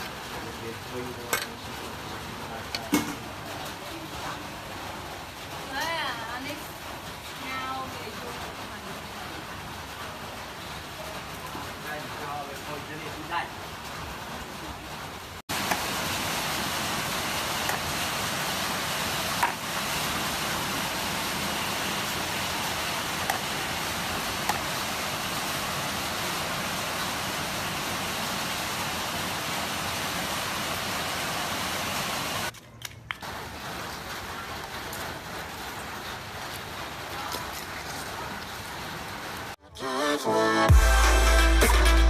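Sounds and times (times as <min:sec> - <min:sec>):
steady hiss: 0:15.5 - 0:32.5.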